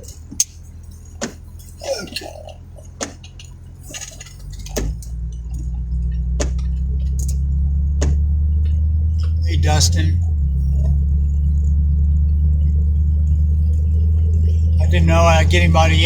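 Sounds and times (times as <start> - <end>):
engine and road hum: 0.0 - 16.0
sharp clicks: 2.8 - 9.5.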